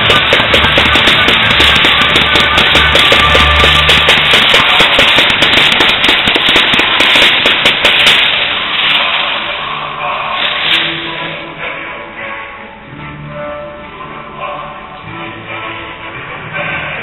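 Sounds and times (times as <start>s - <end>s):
fireworks crackling: 0.0s - 11.3s.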